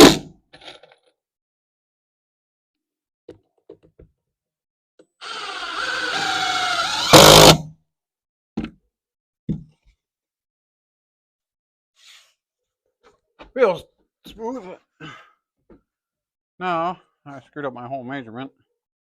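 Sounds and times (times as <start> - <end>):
power drill driving a screw: 5.2 - 7.7.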